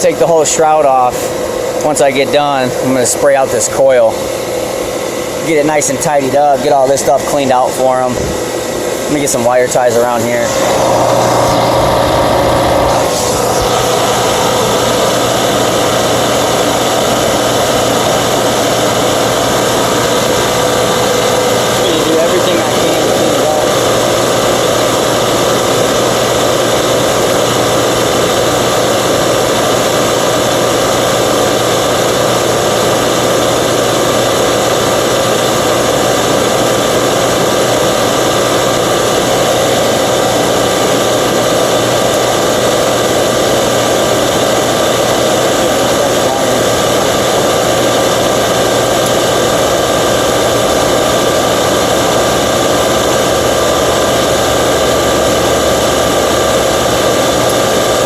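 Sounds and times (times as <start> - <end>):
machine compressor humming: 0.0 - 58.0.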